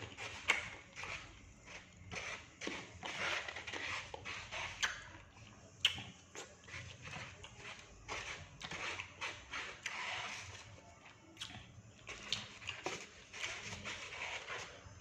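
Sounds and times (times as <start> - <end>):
person chewing food: 0.0 - 15.0
wet mouth clicks: 5.8 - 6.1.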